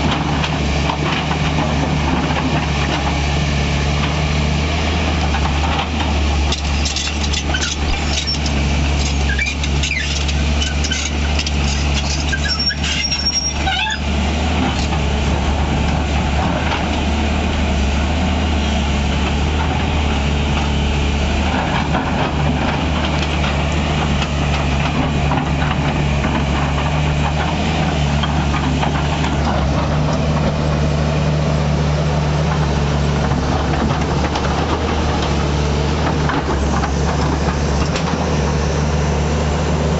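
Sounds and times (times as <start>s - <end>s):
excavator diesel engine running: 0.0s - 39.9s
brief high squeal: 12.1s - 14.0s.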